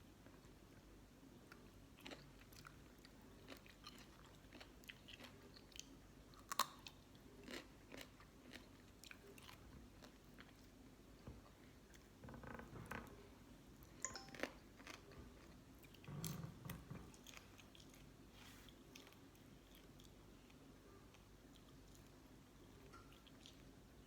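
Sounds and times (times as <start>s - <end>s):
person chewing crunchy food: 2.0s - 10.8s, 14.1s - 16.1s, 17.1s - 22.2s.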